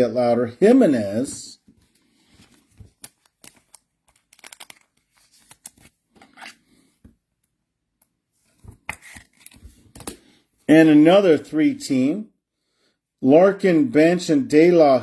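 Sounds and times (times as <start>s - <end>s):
cards rustling and clicking: 1.7s - 6.8s.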